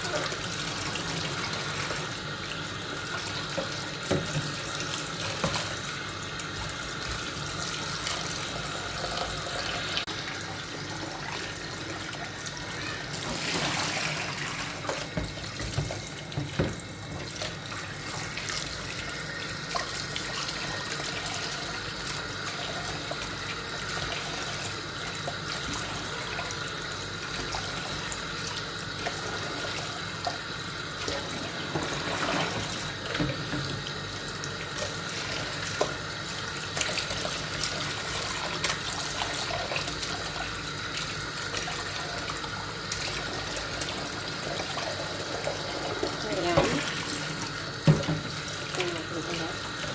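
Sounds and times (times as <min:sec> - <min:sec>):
tap running into a sink: 0:03.0 - 0:05.8, 0:13.2 - 0:17.5, 0:31.1 - 0:34.0, 0:45.5 - 0:48.9.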